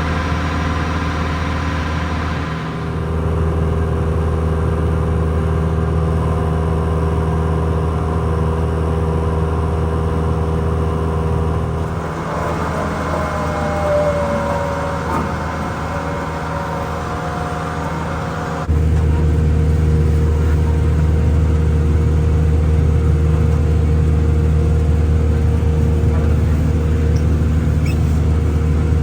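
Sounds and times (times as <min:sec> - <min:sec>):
vehicle engine humming: 0:00.0 - 0:06.2, 0:11.2 - 0:29.0
higher gliding tones: 0:11.8 - 0:18.8.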